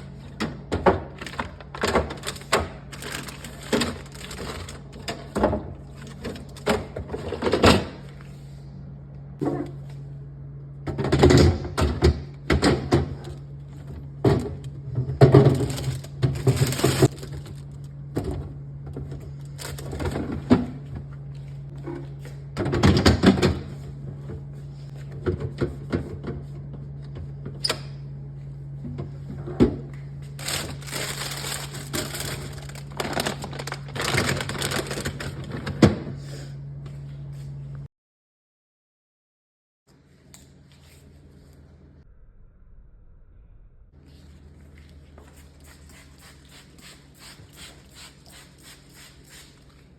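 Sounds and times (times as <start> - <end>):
steady low hum: 39.9 - 49.9.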